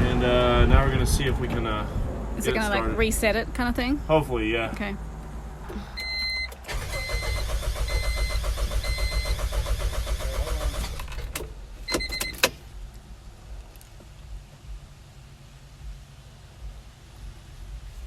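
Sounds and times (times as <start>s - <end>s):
car starter cranking engine: 5.6s - 12.7s.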